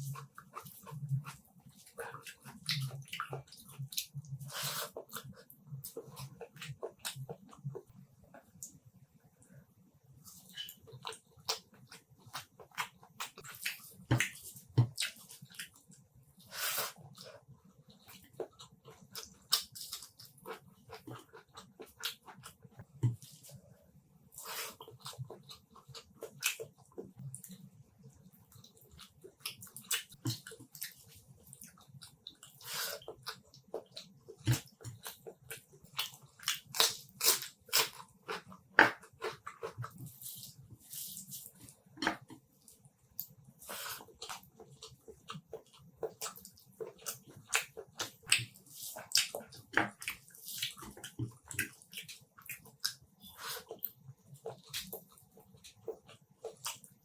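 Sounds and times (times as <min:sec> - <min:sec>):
wet chewing and lip smacks: 0:28.5 - 0:57.0.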